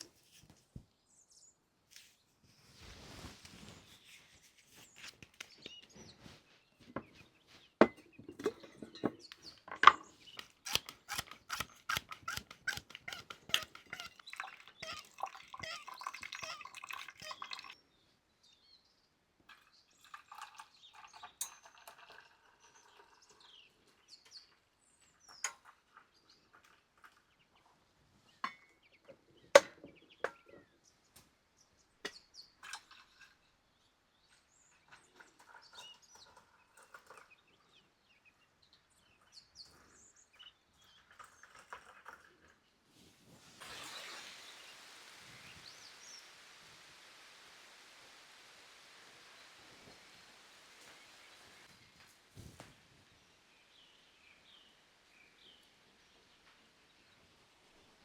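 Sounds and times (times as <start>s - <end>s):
sharp clicks and knocks: 7.8s - 14.2s.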